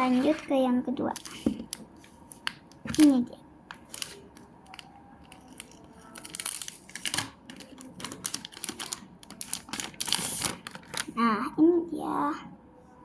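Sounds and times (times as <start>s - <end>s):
packaging tearing and crinkling: 3.7s - 11.2s.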